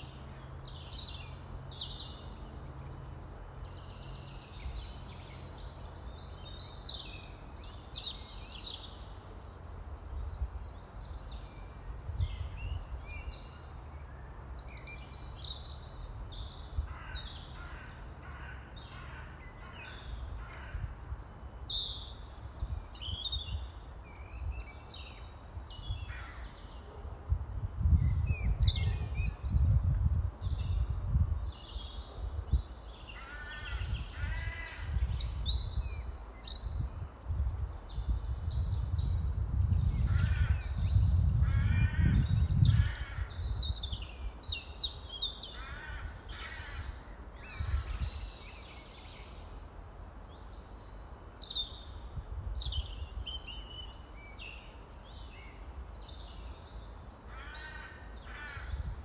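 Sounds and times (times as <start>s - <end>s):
birds chirping and calling: 38.6s - 50.7s.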